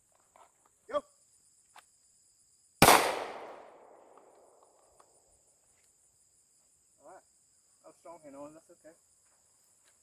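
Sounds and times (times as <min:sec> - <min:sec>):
insects chirping: 0:00.0 - 0:10.0
pistol shot echoing: 0:02.8 - 0:04.2.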